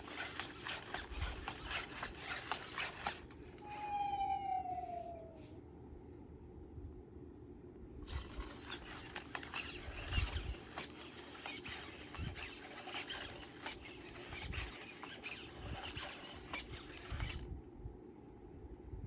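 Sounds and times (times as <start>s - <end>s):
rapid scratching and clicking: 0.0s - 3.4s, 8.1s - 17.5s.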